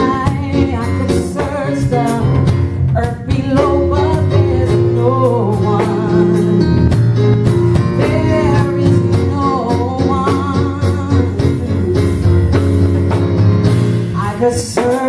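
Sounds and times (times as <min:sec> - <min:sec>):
steady drum beat: 0:00.0 - 0:15.0
sustained bass: 0:00.0 - 0:15.0
person singing: 0:07.9 - 0:12.6, 0:14.2 - 0:15.0.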